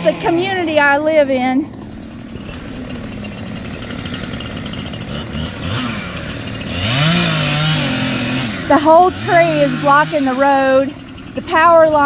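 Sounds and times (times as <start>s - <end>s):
chainsaw revving: 0.0s - 12.0s.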